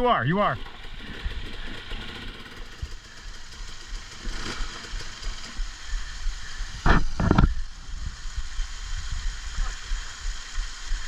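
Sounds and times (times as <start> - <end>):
engine revving bursts: 0.0 - 6.6
motorcycle engine idling: 0.0 - 11.0.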